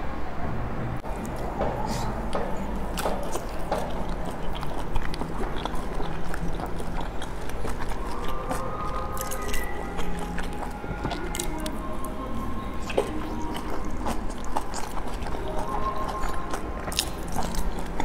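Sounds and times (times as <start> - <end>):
wet mouth clicks: 1.2 - 12.2, 12.8 - 18.0
chewing and biting dumplings: 2.2 - 18.0.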